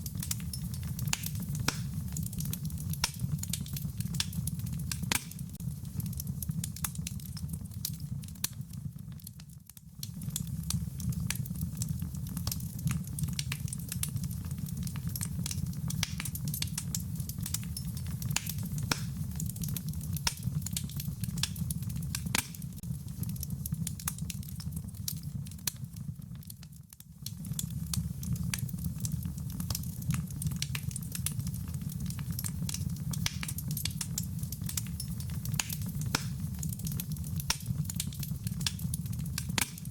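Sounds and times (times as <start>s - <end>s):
wood fire crackling: 0.0s - 39.9s
rain pattering: 9.9s - 39.9s.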